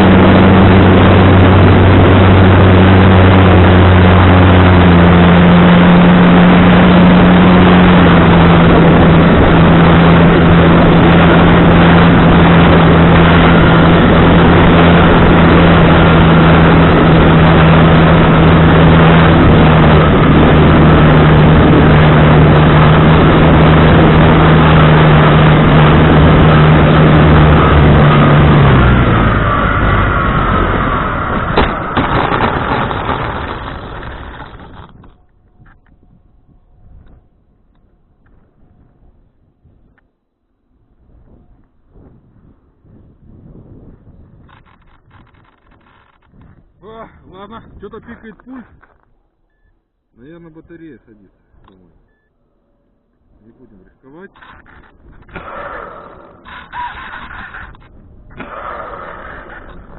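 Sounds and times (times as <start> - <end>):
model plane motor and propeller: 0.0 - 29.4, 30.5 - 36.0, 53.6 - 59.9
wind noise: 0.0 - 49.2, 54.3 - 59.9.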